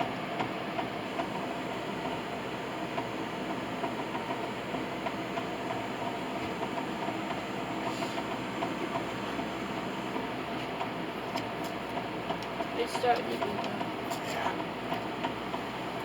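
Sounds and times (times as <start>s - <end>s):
steady mechanical running noise: 0.0s - 16.0s.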